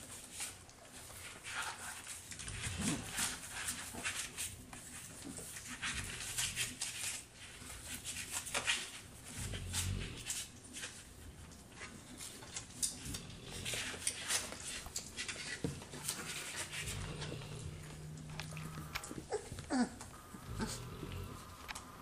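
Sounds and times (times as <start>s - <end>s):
puppies scuffling: 0.0s - 22.0s
puppy whining: 12.4s - 21.6s.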